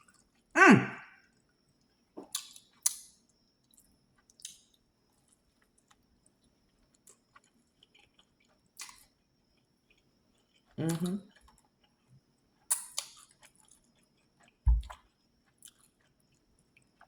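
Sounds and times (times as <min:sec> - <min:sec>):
sharp mouth sounds: 0:00.6 - 0:01.1
quiet chewing: 0:03.7 - 0:17.0.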